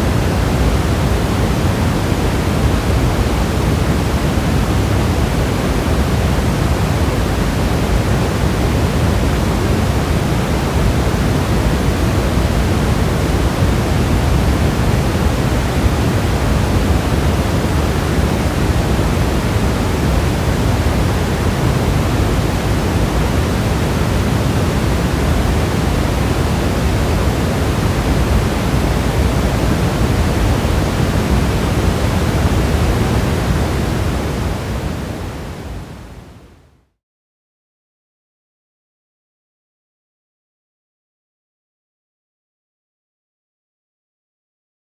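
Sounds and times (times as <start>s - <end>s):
heavy rain hiss: 0.0s - 35.9s.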